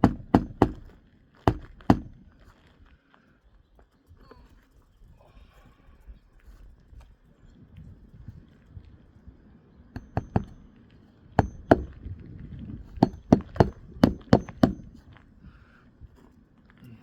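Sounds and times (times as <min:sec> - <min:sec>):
hammer striking roofing nails: 0:00.0 - 0:02.2, 0:10.0 - 0:10.7, 0:11.4 - 0:12.1, 0:12.9 - 0:15.0.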